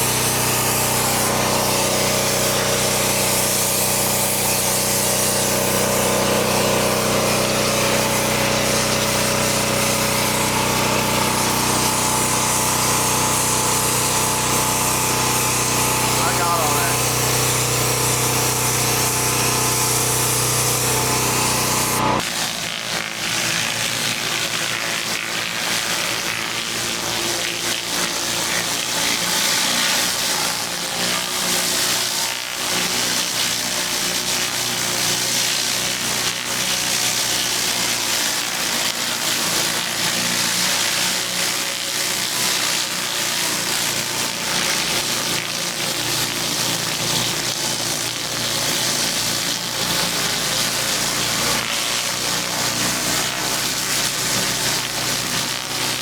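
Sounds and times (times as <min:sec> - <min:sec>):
water spray hissing: 0:00.0 - 0:22.2
pressure washer engine running: 0:00.0 - 0:56.0.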